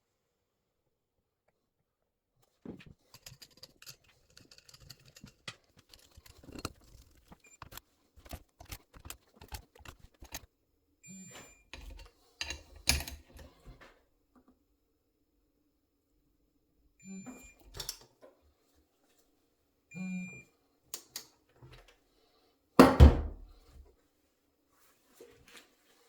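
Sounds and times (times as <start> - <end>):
tools handled on workbench: 2.7 - 10.4, 11.8 - 13.7.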